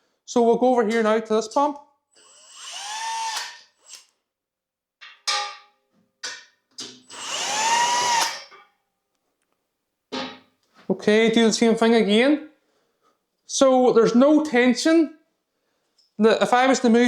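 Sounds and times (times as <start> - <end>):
power drill whirring: 2.2 - 4.1, 7.0 - 8.5.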